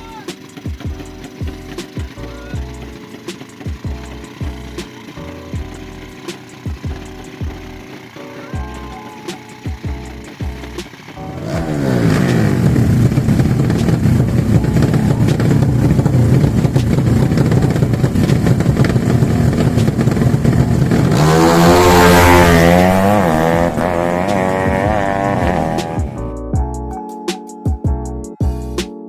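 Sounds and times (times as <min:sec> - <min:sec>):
motorcycles accelerating at high revs: 0:00.3 - 0:08.2, 0:09.4 - 0:26.2
motorcycle passing close: 0:09.8 - 0:26.2.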